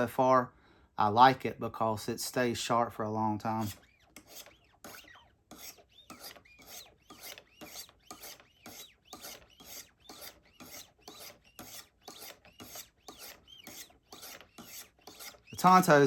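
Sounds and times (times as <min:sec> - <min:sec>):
stone rasping along knife edge: 0:03.5 - 0:16.0.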